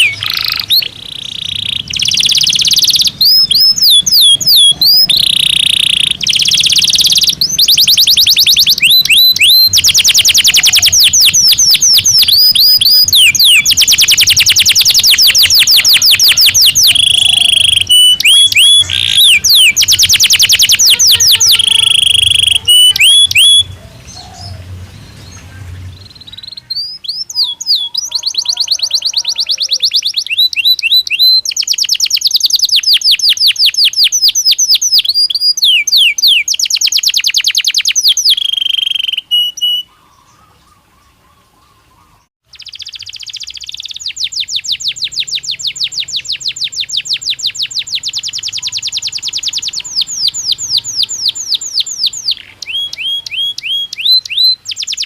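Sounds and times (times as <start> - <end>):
canary singing trills and whistles: 0.0 - 55.0.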